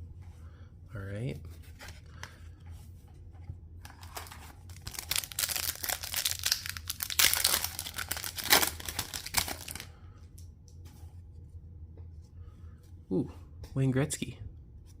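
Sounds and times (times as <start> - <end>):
card pack wrapper tearing: 3.9 - 9.9
wrapper crinkling and rustling: 3.9 - 9.9.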